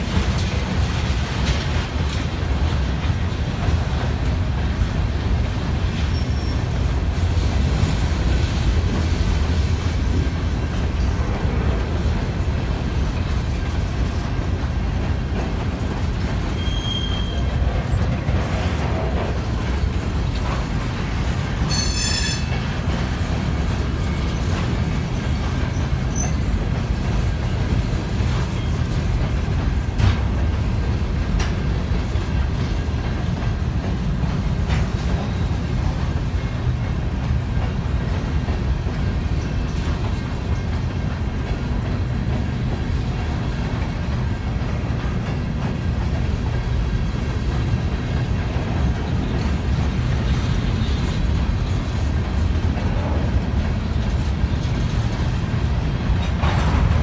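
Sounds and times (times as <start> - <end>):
rumble of train wheels on rails: 0.0 - 57.0
crossing bell ringing: 21.7 - 22.6.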